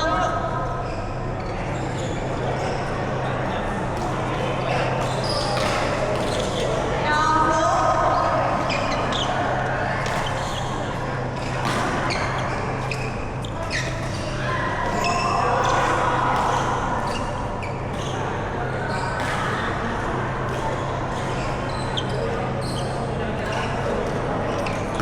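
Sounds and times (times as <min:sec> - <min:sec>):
low hum of hall: 0:00.0 - 0:25.0
shoes squeaking on court: 0:00.8 - 0:03.3, 0:04.0 - 0:06.9, 0:20.5 - 0:25.0.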